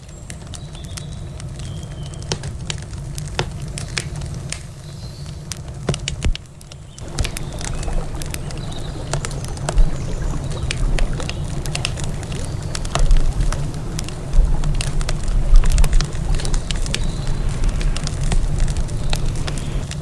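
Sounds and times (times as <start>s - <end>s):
river water rushing: 7.0s - 20.0s
wood campfire crackling: 7.0s - 20.0s.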